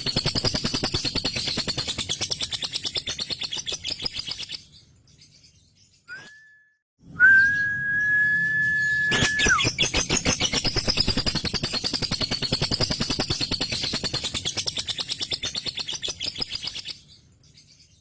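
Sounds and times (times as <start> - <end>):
bird rapid chattering song: 0.0 - 5.5, 9.1 - 18.0
bird whistled tone: 6.1 - 10.8.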